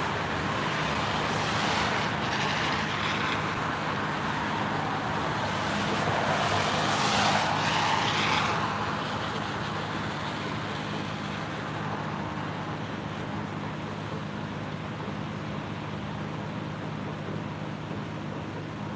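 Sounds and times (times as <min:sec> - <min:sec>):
vehicle passing: 0:00.0 - 0:10.6
road traffic hum: 0:00.0 - 0:18.9.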